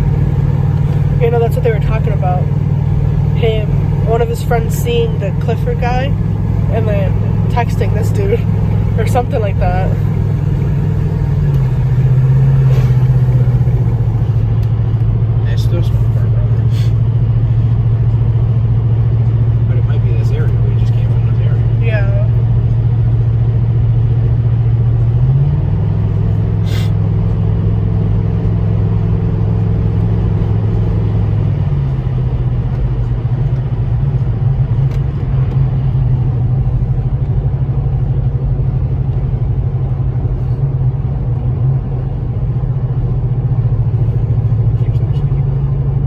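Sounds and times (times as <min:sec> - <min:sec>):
vehicle engine and road rumble: 0:00.0 - 0:46.0.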